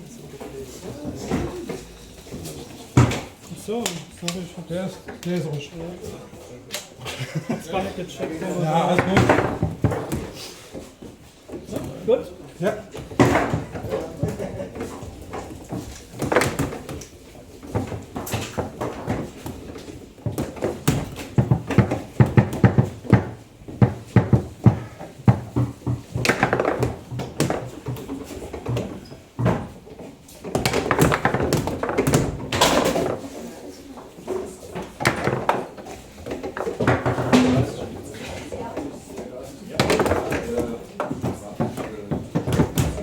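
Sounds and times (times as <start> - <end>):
table football rods knocking: 1.2 - 5.4, 8.8 - 12.0, 12.8 - 38.0, 39.8 - 43.0
ball clacking on plastic figures: 8.2 - 12.0, 12.9 - 43.0.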